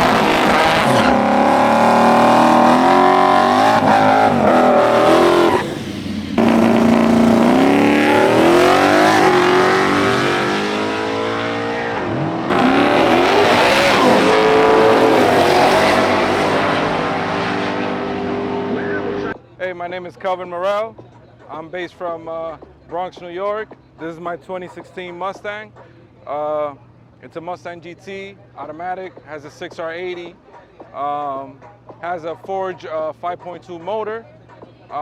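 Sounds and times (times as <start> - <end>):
car engine accelerating: 0.0 - 19.4.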